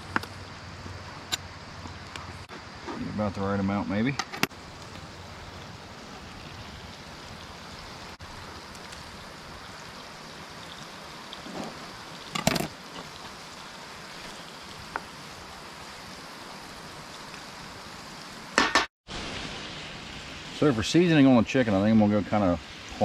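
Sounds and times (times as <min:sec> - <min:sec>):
potatoes sizzling in a skillet: 0:04.5 - 0:21.1.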